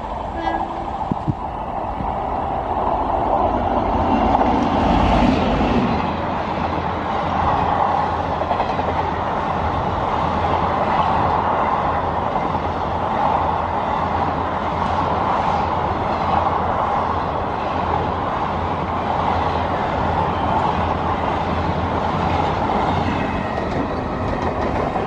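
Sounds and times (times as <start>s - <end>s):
express train passing: 0.0s - 25.0s
train wheels on rails: 0.0s - 25.0s.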